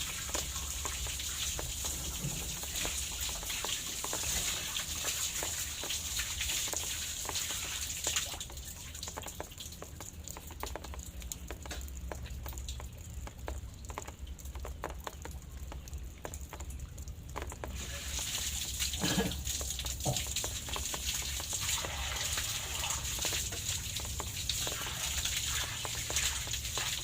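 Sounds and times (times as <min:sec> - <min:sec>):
low steady hum: 0:00.0 - 0:27.0
raindrops pattering and dripping: 0:00.0 - 0:27.0.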